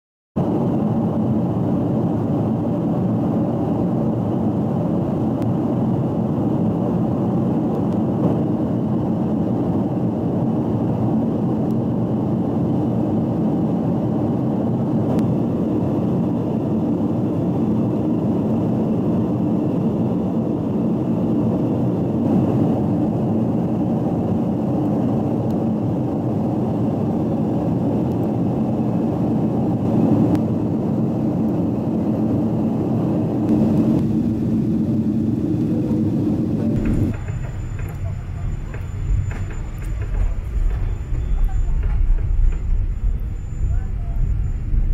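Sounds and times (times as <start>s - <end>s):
jet engine cabin rumble: 0.4s - 44.9s
faint high whine: 36.6s - 44.9s.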